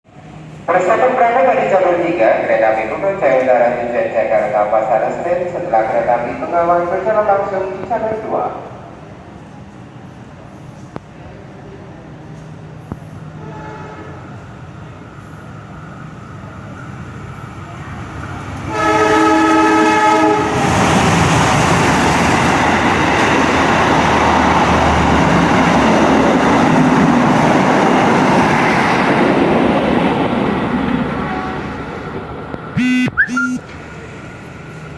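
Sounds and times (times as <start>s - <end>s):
train passing rush: 0.1s - 32.8s, 33.5s - 34.9s
train horn blast: 13.4s - 14.2s, 18.7s - 20.6s, 32.8s - 33.7s.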